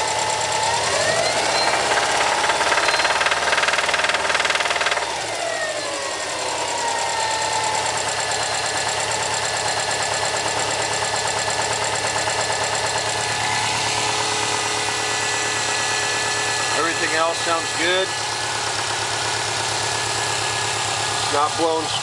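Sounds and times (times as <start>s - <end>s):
car engine idling: 0.0s - 22.0s
rhythmic engine knock: 1.4s - 5.4s, 7.8s - 14.8s.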